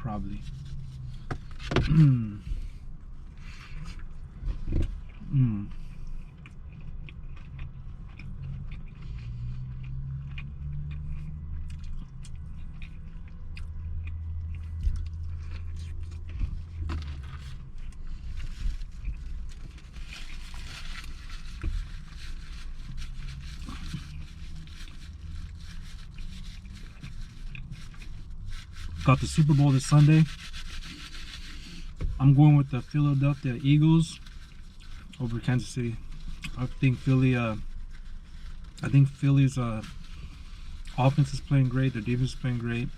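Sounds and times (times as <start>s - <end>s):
low steady hum: 0.0s - 42.9s
person chewing crunchy food: 0.2s - 29.1s.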